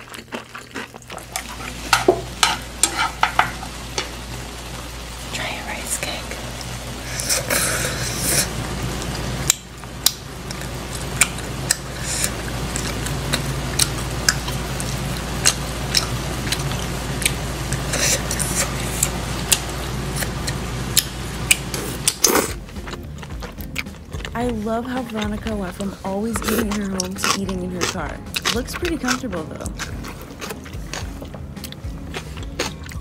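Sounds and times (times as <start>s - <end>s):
steady low hum: 0.0s - 33.0s
slurping noodles: 7.0s - 8.6s, 21.5s - 24.3s, 25.2s - 33.0s
lip smacks and chewing: 9.5s - 33.0s.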